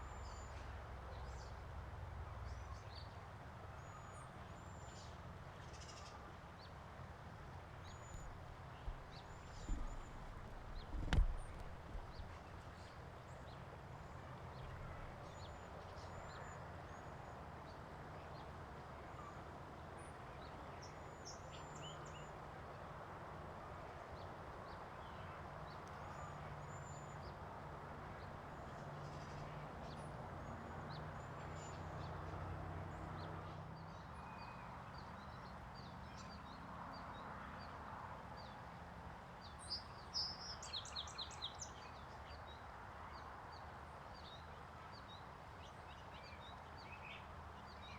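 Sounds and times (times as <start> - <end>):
small songbirds chirping: 7.7 - 16.6, 39.4 - 42.6
low background rumble: 8.1 - 12.5.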